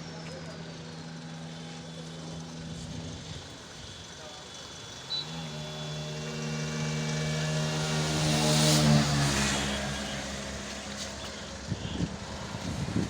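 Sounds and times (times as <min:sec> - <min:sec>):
car driving past: 0:05.7 - 0:11.2.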